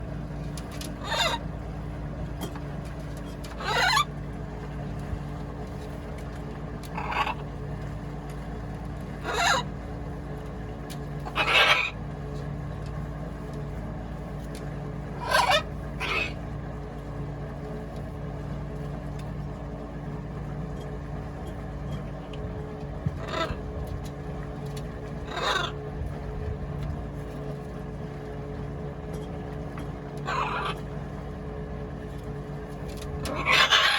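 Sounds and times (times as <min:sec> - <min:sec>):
steady low hum: 0:00.0 - 0:33.9
parrots squawking: 0:01.0 - 0:01.5, 0:03.5 - 0:04.1, 0:06.9 - 0:07.5, 0:09.2 - 0:09.7, 0:11.2 - 0:12.0, 0:15.2 - 0:16.4, 0:23.2 - 0:23.6, 0:25.2 - 0:25.8, 0:30.2 - 0:30.8, 0:33.2 - 0:33.9.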